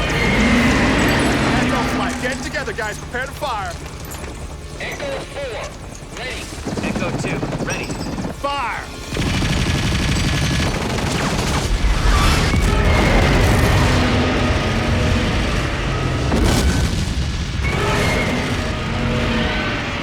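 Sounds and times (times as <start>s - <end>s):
missiles and gunfire: 0.0s - 20.0s
sharp explosion blasts: 9.2s - 20.0s
heavy booming rumble: 9.3s - 20.0s.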